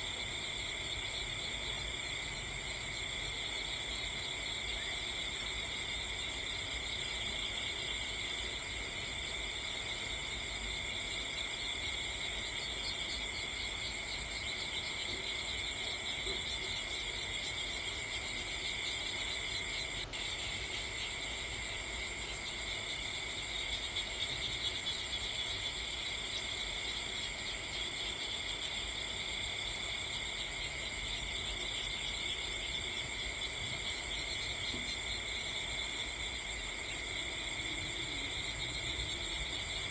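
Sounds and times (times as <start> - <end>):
night insects chirring: 0.0 - 39.9.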